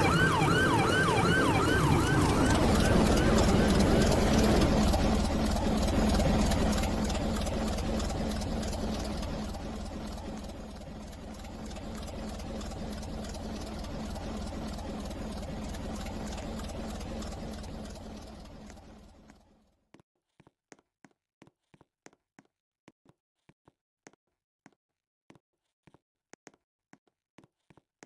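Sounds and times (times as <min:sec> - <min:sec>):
vehicle engine rumble: 0:00.0 - 0:19.5.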